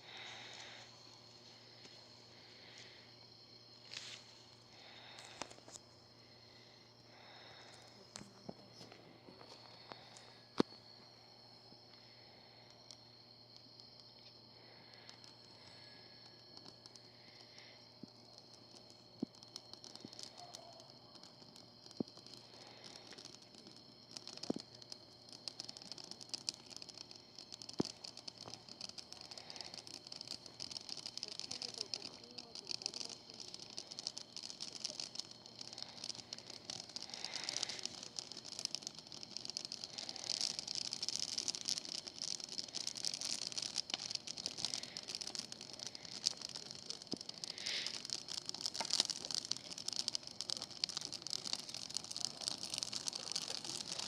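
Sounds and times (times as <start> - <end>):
bonfire crackling and popping: 0.0 - 54.0.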